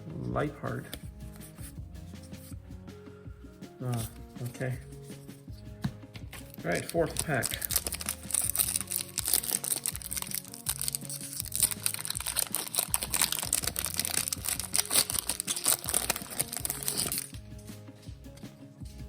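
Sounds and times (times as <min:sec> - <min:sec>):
background music: 0:00.0 - 0:19.0
foil wrapper crinkling: 0:06.4 - 0:17.4.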